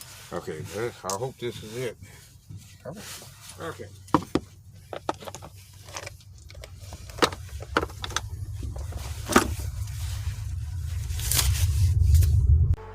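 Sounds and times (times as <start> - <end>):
low rumble: 5.5 - 12.9.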